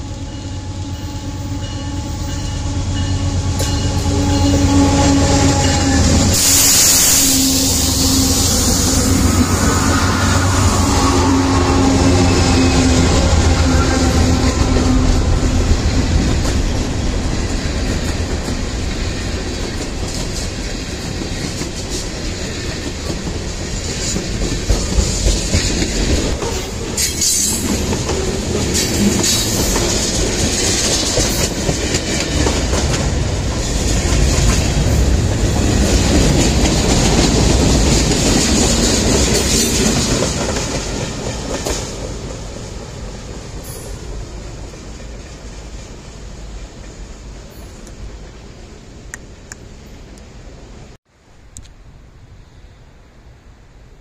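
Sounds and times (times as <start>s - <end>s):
high wheel squeals: 0.3s - 14.9s
train wheels clacking over rail joints: 13.7s - 44.1s.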